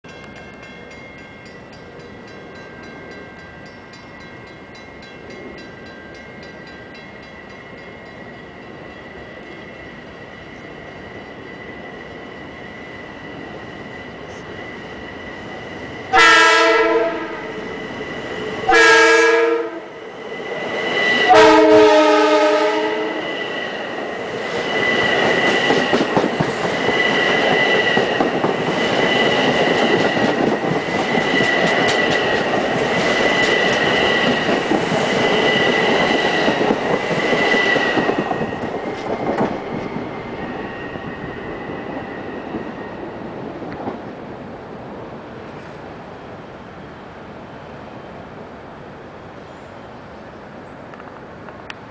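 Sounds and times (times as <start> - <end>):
electric train hum and whine: 0.1 - 51.9
train horn blasts: 16.1 - 17.5, 18.7 - 19.9, 21.2 - 23.3
wheels clattering on rails: 23.5 - 44.2.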